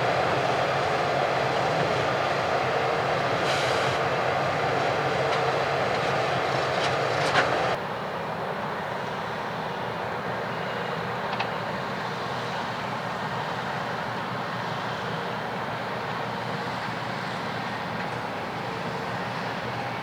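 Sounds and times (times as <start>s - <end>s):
harvest machinery running: 0.0s - 7.8s.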